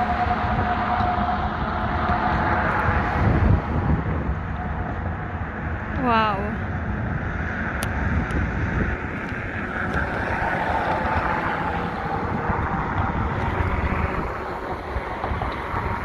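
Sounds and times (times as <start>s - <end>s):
steady rushing roar: 0.0s - 16.0s
wind buffeting microphone: 0.0s - 16.0s.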